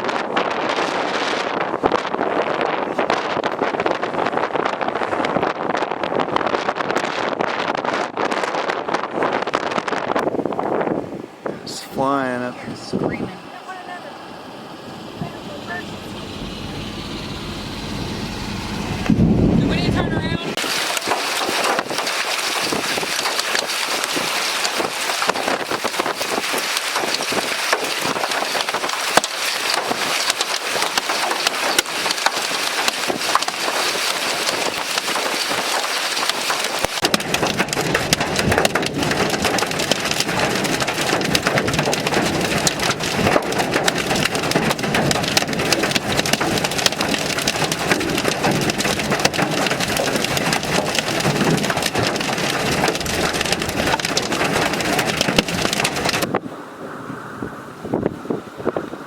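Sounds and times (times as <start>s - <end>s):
steady low rumble: 11.2s - 21.5s
hail and heavy rain clattering: 19.7s - 56.3s.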